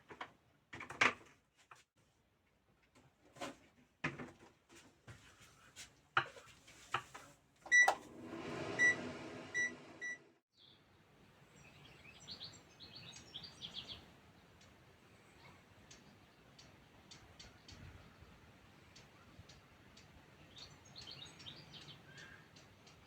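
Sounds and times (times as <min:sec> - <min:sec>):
fruit dryer motor humming: 0:07.7 - 0:10.3
short beeps of fruit dryer: 0:07.7 - 0:10.3
small birds chirping: 0:10.6 - 0:23.0.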